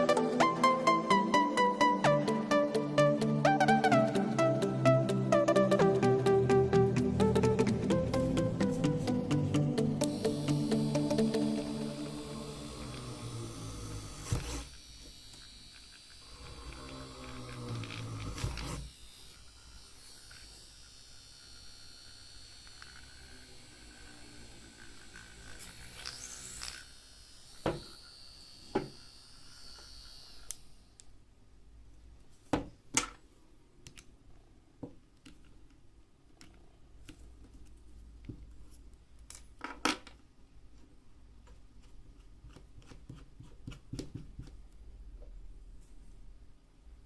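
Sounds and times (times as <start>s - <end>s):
small electric motor whining: 10.0s - 31.0s.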